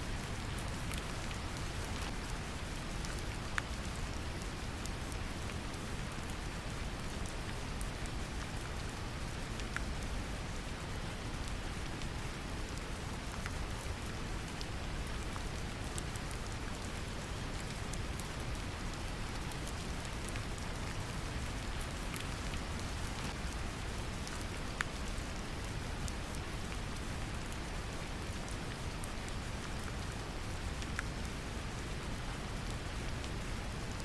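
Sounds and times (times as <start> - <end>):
gentle rain: 0.0 - 34.0.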